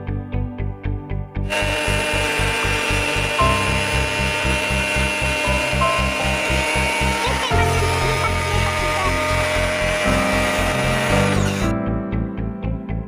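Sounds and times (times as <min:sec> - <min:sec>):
pressure washer whining and hissing: 0:01.5 - 0:11.7.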